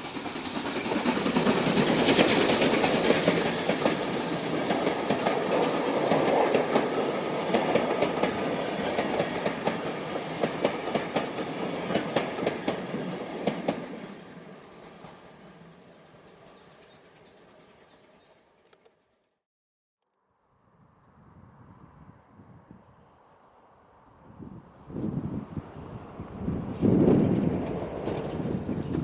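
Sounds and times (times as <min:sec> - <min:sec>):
steam train passing: 0:00.0 - 0:18.5, 0:22.8 - 0:29.0.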